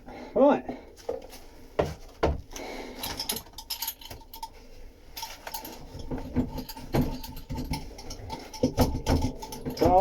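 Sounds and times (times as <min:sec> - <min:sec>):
metal tools clicking and rattling: 0:02.5 - 0:10.0.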